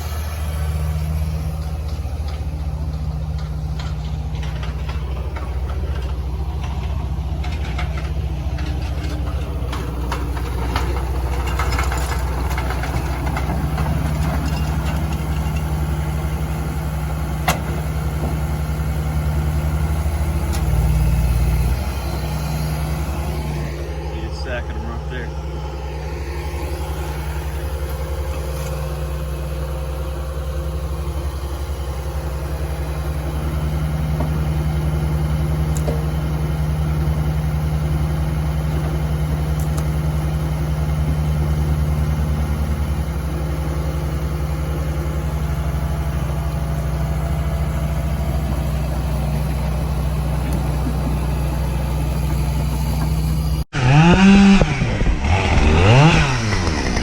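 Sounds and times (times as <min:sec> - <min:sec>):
diesel engine running: 0:00.0 - 0:57.0
chainsaw revving: 0:53.7 - 0:57.0.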